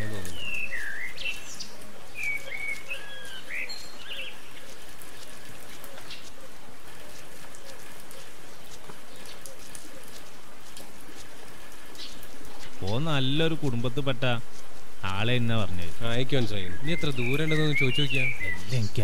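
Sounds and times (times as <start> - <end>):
birds chirping: 0.0 - 19.0
steady outdoor hiss: 0.0 - 19.0.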